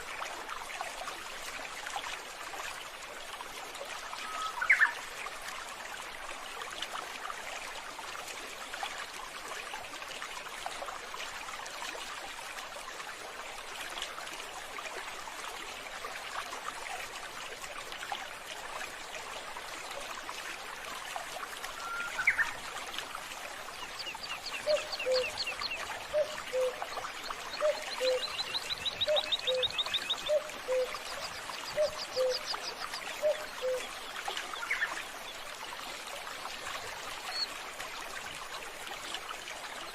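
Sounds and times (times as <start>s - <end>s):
trickle of running water: 0.0s - 39.9s
birds chirping and trilling: 24.0s - 26.7s, 27.6s - 33.8s.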